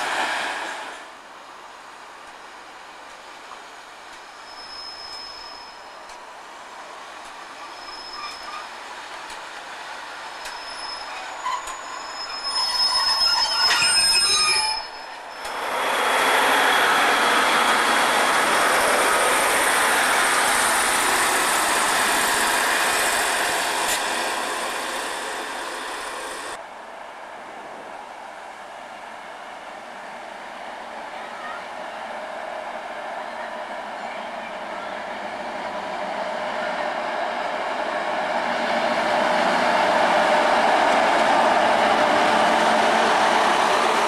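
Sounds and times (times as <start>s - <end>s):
train passing with rushing noise: 0.0s - 44.0s
train wheels squealing and clicking: 4.0s - 6.3s, 7.1s - 26.6s.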